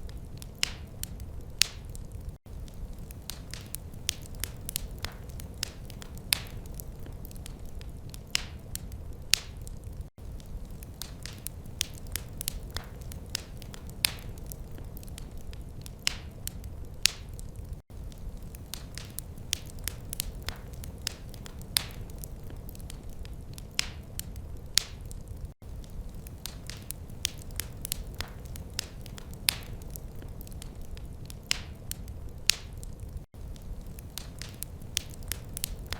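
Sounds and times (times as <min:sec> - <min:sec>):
wood fire crackling: 0:00.0 - 0:35.9.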